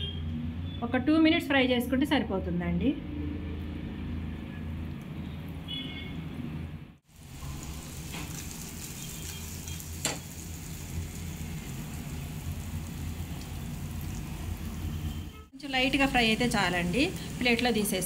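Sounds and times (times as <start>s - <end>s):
cake sizzling in hot oil: 7.0s - 18.0s.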